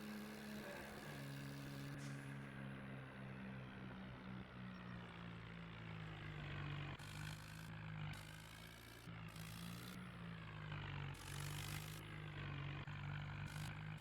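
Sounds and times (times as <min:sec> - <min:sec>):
tractor diesel engine running: 0:00.0 - 0:02.5.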